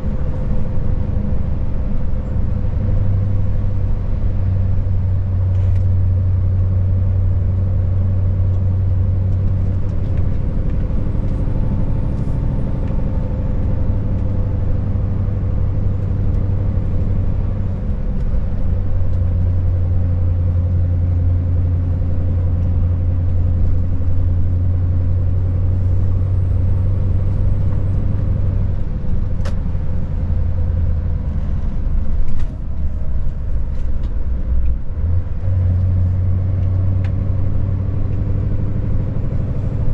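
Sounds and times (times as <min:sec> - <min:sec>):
road noise: 0:00.0 - 0:39.9
truck diesel engine droning: 0:00.0 - 0:39.9.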